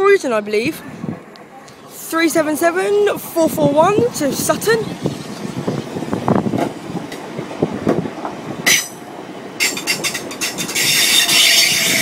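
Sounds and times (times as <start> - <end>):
electric train rumbling: 0.7 - 12.0
wheels clicking over rail joints: 5.0 - 12.0.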